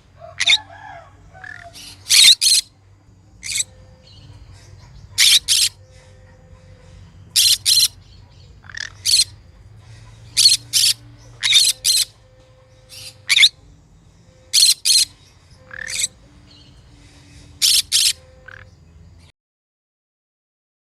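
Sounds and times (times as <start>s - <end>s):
parrot squawking: 0.4s - 0.8s, 1.4s - 2.7s, 3.4s - 3.8s, 4.8s - 9.4s, 10.1s - 12.2s, 12.8s - 13.6s, 14.5s - 16.2s, 17.6s - 18.7s.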